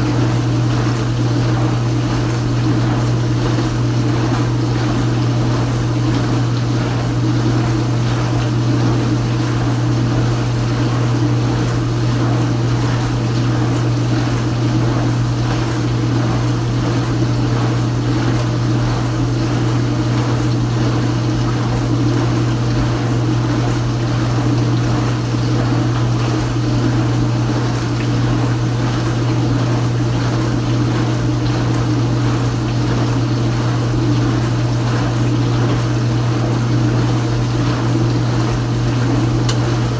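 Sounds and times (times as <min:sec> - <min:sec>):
dishwasher pump humming: 0:00.0 - 0:39.9
water spraying inside dishwasher: 0:00.0 - 0:39.9.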